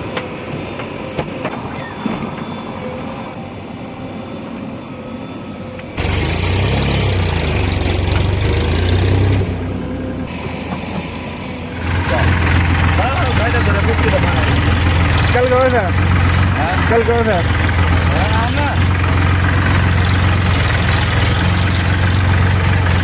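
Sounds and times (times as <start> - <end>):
heavy diesel engine: 4.8 - 23.0.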